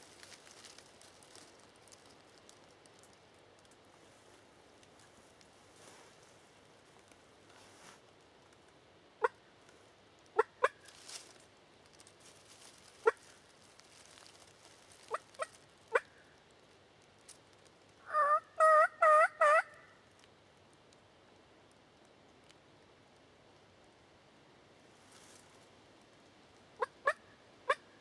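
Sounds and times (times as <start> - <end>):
turkey calls: 10.3 - 10.9, 13.0 - 13.3, 15.0 - 16.3, 18.0 - 19.9, 26.8 - 28.0
turkey yelping: 18.1 - 19.9, 26.8 - 27.9.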